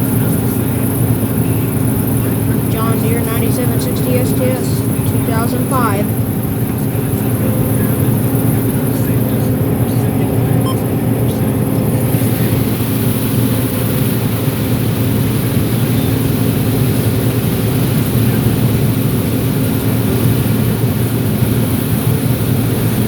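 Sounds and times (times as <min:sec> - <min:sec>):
held machinery tones: 0:00.0 - 0:14.1
combine diesel engine drone: 0:00.0 - 0:23.0.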